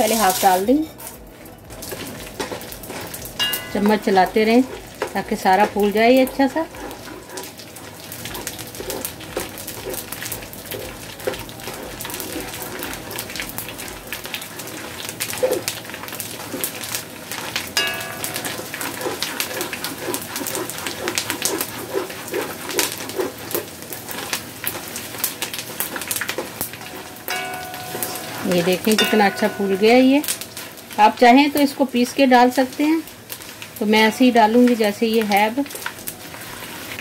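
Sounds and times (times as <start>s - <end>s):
gum crackling in hot ghee: 0.9s - 27.6s
spatula scraping metal pot: 1.9s - 13.5s, 17.8s - 31.0s.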